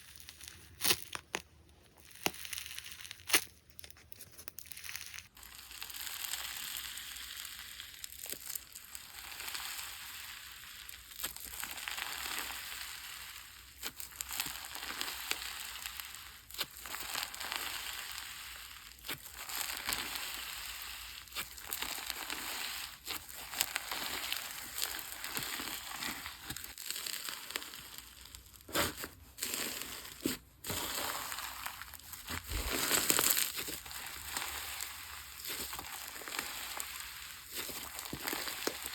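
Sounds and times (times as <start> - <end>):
slime squeezed by hand: 28.6 - 38.9.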